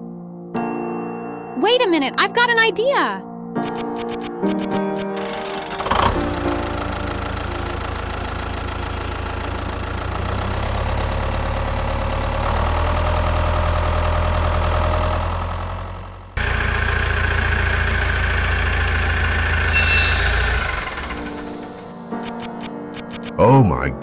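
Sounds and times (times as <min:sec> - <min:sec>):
tractor engine droning: 0:04.6 - 0:23.4.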